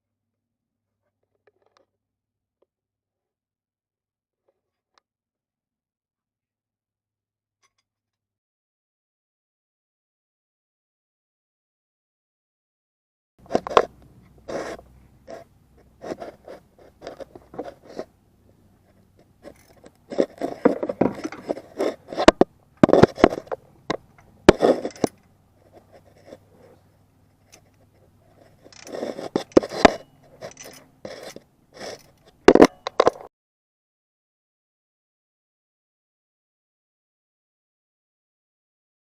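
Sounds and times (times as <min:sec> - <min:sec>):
tools clicking and knocking: 0:19.1 - 0:26.4, 0:27.3 - 0:33.3.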